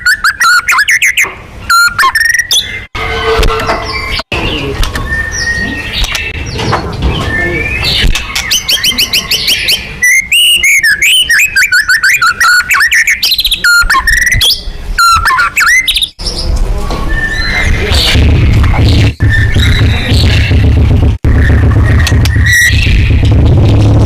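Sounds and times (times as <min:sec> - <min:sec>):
songbird singing whistled phrases: 0:00.0 - 0:02.9, 0:03.9 - 0:06.6, 0:07.2 - 0:18.1.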